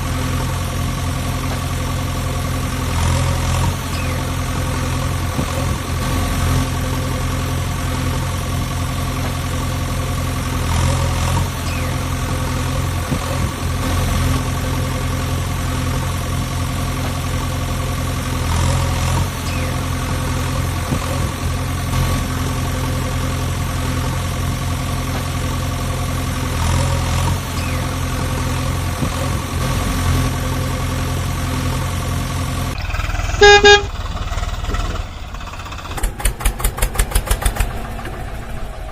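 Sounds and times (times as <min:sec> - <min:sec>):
diesel engine idling: 0:00.0 - 0:38.9
vehicle horn toot: 0:33.0 - 0:34.3.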